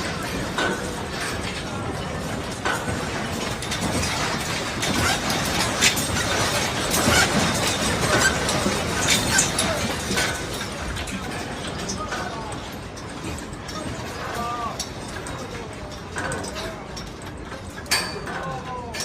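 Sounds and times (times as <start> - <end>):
objects rattling and clattering: 0.0 - 19.0
sharp clinks and knocks: 0.0 - 19.0.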